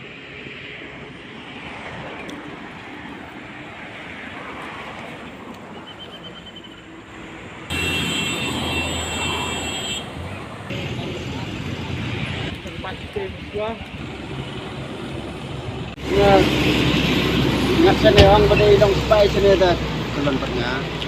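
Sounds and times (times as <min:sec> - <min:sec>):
traffic: 0:00.0 - 0:21.0
close engine: 0:05.2 - 0:21.0.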